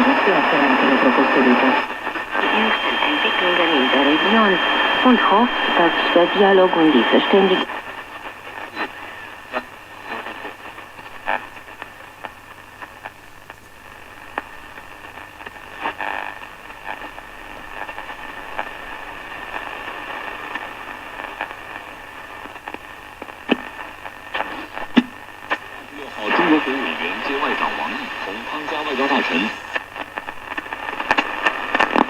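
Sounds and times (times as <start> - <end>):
crackles and clicks: 0.0 - 32.0
radio static hiss: 0.0 - 32.0.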